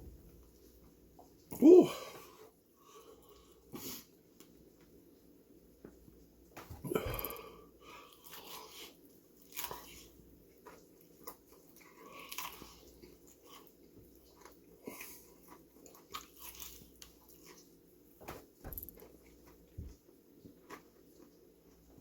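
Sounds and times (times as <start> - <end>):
crunchy chewing: 6.9 - 19.7.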